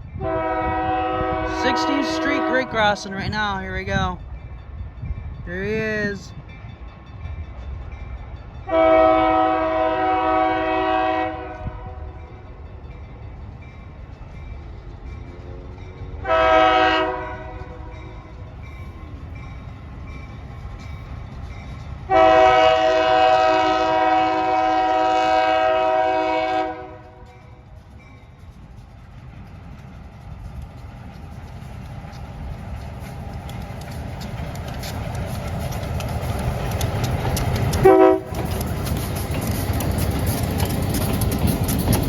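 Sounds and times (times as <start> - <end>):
train rumble: 0.0 - 42.0
locomotive air horn: 0.2 - 3.0, 8.7 - 12.0, 16.2 - 17.6, 22.1 - 27.2, 37.8 - 38.4
wheel clicks over rail joints: 30.6 - 42.0.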